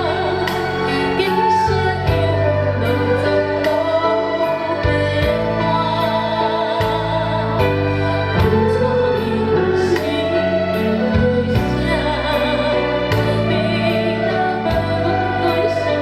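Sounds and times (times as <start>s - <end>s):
person singing: 0.0s - 16.0s.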